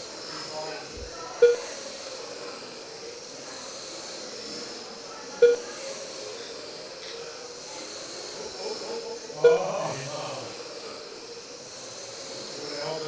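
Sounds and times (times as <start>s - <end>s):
short beeps: 1.4s - 1.6s, 5.4s - 5.6s.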